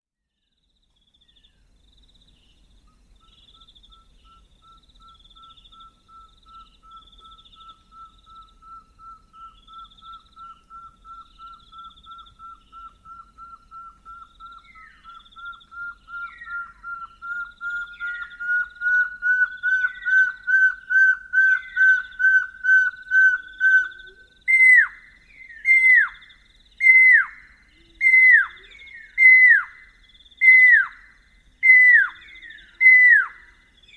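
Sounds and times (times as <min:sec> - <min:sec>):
distant owlet higher phrases: 0:10.7 - 0:33.6.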